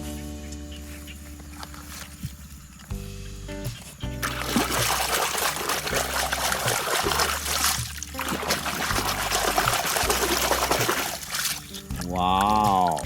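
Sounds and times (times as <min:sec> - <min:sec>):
background music with low bass: 0:00.0 - 0:13.0
rushing pouring noise: 0:04.4 - 0:13.0.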